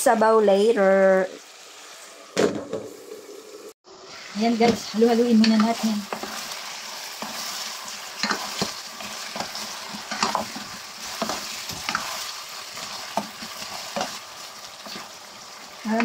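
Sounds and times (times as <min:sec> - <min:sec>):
chicken sizzling in oil: 0:00.0 - 0:16.0
spatula scraping and knocking pot: 0:04.6 - 0:07.6, 0:08.2 - 0:15.2.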